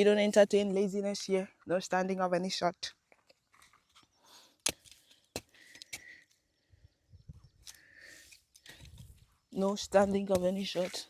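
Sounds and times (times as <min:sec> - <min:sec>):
soft taps and rustles in soil: 0:03.0 - 0:06.4, 0:07.6 - 0:11.0.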